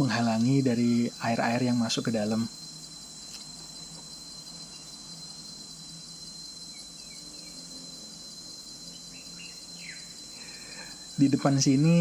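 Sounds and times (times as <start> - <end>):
insects chirring: 0.0 - 12.0
faint bird chirps: 6.6 - 12.0.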